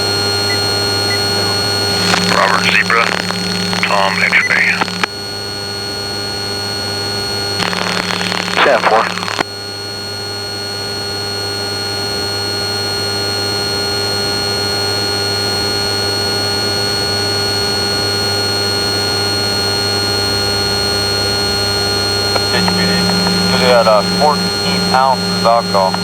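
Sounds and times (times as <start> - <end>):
electrical hum and hiss: 0.0 - 5.1, 7.6 - 9.4, 19.0 - 26.0.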